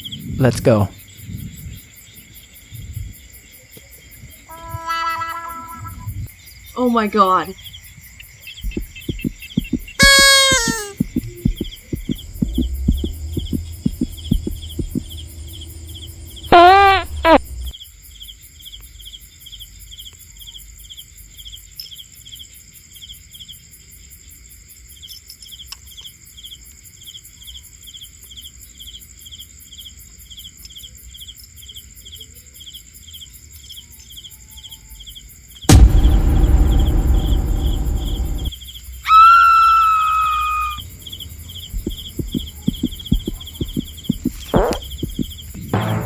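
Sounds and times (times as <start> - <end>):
cricket chirping: 0.0 - 46.0
loud pitched call: 4.5 - 6.1, 8.7 - 17.7, 35.7 - 46.0.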